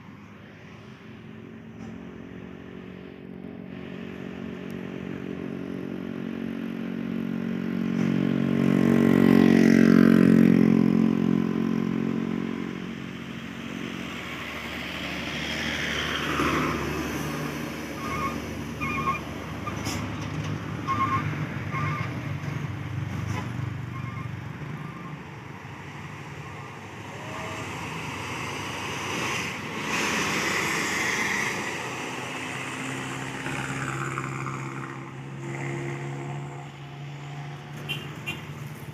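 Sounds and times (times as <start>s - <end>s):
passing vehicles: 0.0s - 38.9s
heavy vehicle engine labouring: 12.9s - 38.9s.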